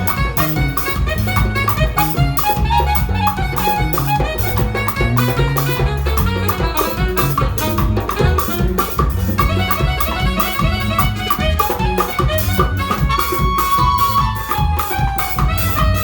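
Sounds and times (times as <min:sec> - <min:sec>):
band music: 0:00.0 - 0:16.0
moving bass line: 0:00.0 - 0:16.0
quick melodic notes: 0:00.0 - 0:16.0
steady drum kit beat: 0:00.0 - 0:16.0.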